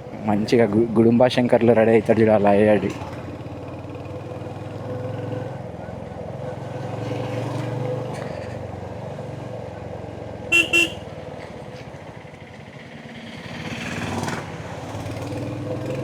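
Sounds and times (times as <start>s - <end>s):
motorcycle engine running: 2.9s - 16.0s
horn toots: 10.5s - 11.1s.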